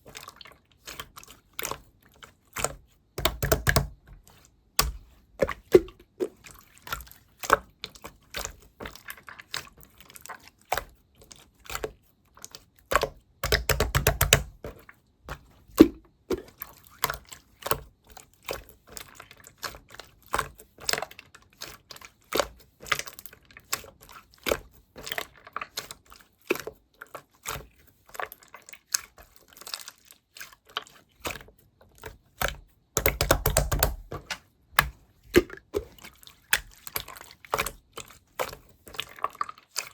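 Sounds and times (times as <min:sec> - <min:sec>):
slime clicking and popping: 0:03.2 - 0:03.9, 0:13.0 - 0:14.5, 0:33.0 - 0:34.1.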